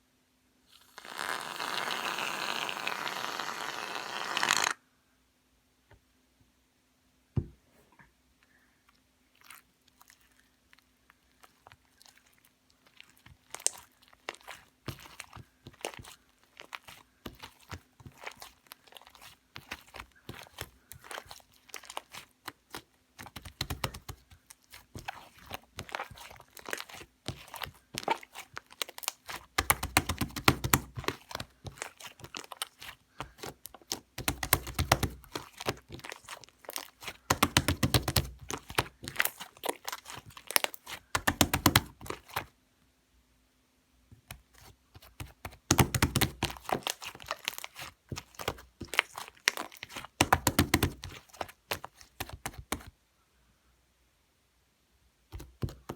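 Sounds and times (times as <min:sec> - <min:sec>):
shaving foam crackling: 0:00.8 - 0:04.8.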